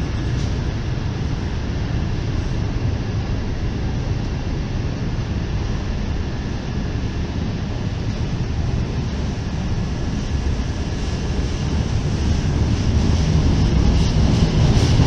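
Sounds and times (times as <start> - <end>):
freight train wheels rumbling: 0.0 - 2.9, 7.7 - 15.0.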